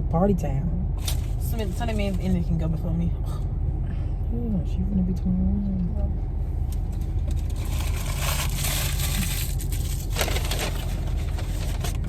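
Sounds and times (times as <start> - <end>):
low car cabin rumble: 0.0 - 12.0
packaging crinkling: 7.4 - 12.0.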